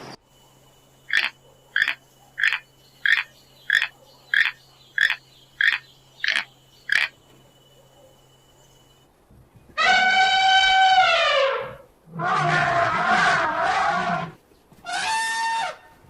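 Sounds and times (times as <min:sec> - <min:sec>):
animal short call: 0:09.8 - 0:15.9.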